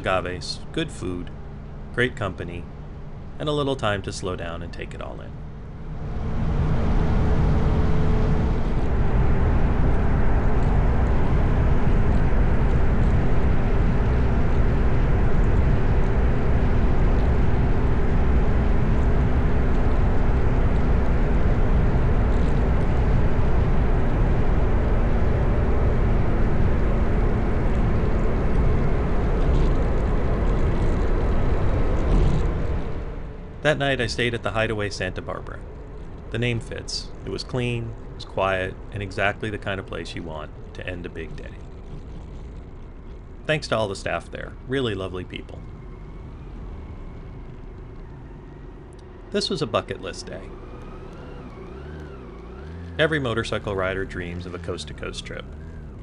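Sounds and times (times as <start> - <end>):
motorcycle engine hum: 0.0 - 56.0
wind rushing over microphone: 5.8 - 19.7.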